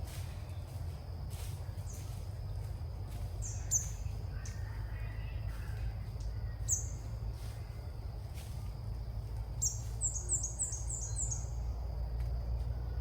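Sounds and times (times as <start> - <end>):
steady low rumble: 0.0 - 13.0
small bird calling: 3.4 - 5.8, 6.5 - 7.7, 9.6 - 11.6.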